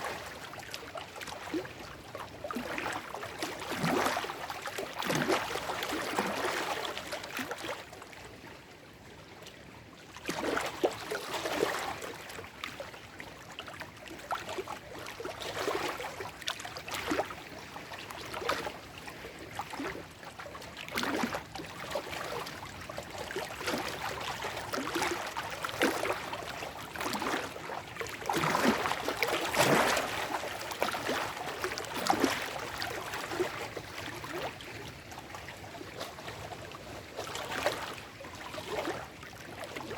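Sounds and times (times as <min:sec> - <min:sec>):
waves lapping over rocks: 0:14.2 - 0:39.9.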